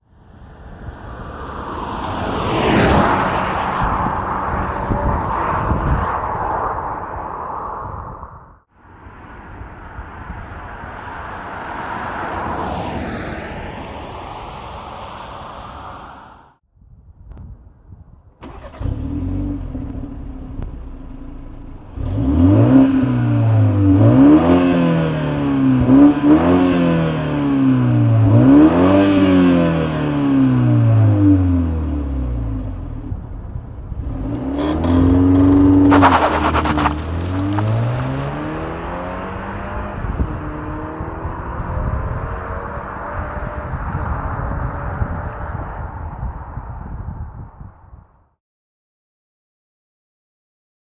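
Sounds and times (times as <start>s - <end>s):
car engine revving: 18.4s - 32.9s, 34.0s - 44.6s.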